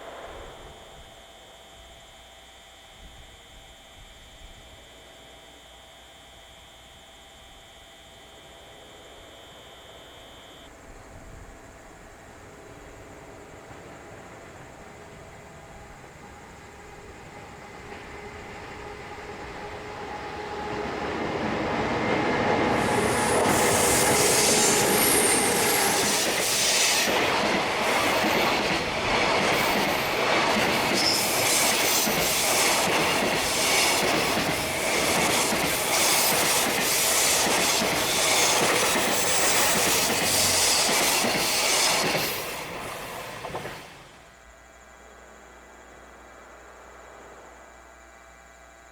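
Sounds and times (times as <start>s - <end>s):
train wheels clattering over rail joints: 13.6s - 44.3s.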